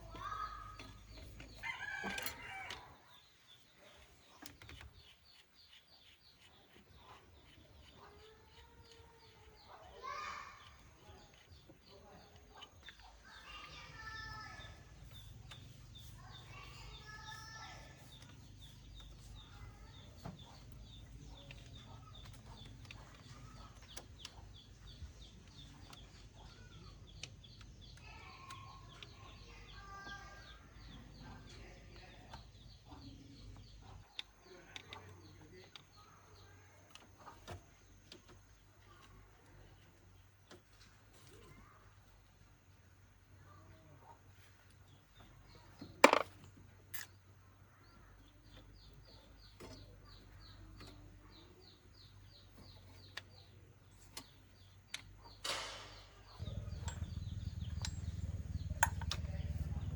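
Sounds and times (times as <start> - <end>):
low steady hum: 56.0 - 59.9.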